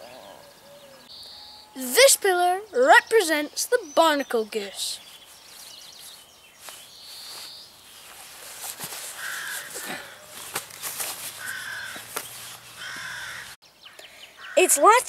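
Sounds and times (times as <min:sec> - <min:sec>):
crow cawing: 0:09.2 - 0:10.4, 0:11.4 - 0:12.1, 0:12.8 - 0:13.6.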